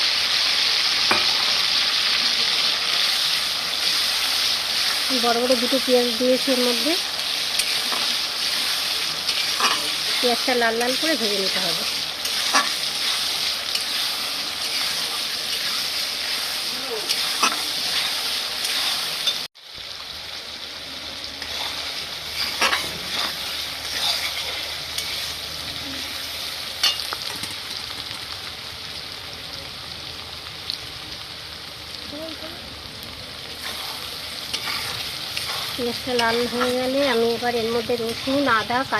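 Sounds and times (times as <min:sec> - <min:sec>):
onions sizzling in oil: 0:00.0 - 0:38.9
spatula scraping in pan: 0:03.0 - 0:19.5, 0:21.4 - 0:27.1, 0:33.6 - 0:38.7.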